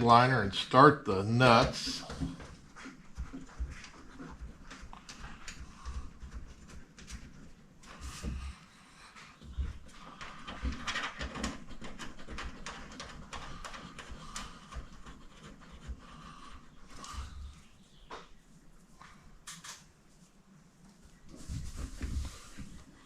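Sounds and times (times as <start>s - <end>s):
hands tapping and rustling: 9.4s - 23.0s.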